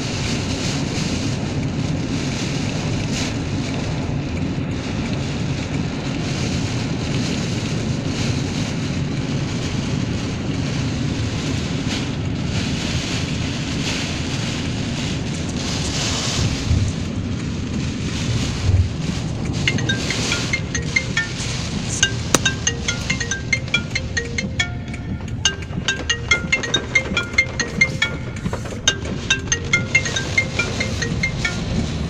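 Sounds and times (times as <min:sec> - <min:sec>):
strong wind buffeting microphone: 0:00.0 - 0:22.2.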